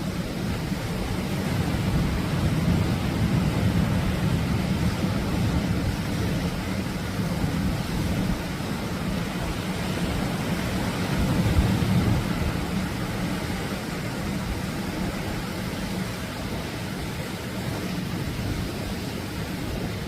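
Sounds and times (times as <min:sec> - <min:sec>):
surf breaking on shore: 0:00.0 - 0:20.0.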